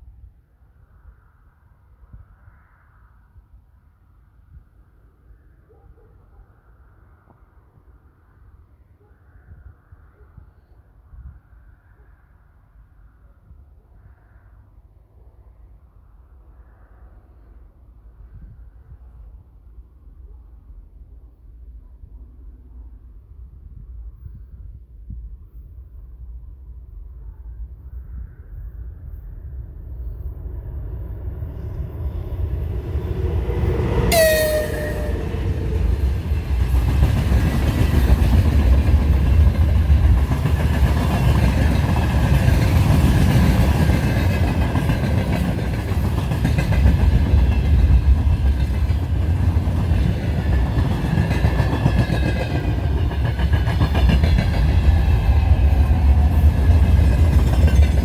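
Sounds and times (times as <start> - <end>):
train wheels rumbling on rails: 29.9 - 58.0
train horn blast: 33.2 - 35.9.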